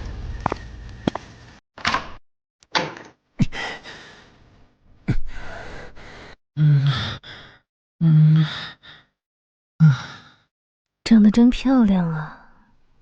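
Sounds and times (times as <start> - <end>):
man sighing and exhaling: 9.8 - 10.5.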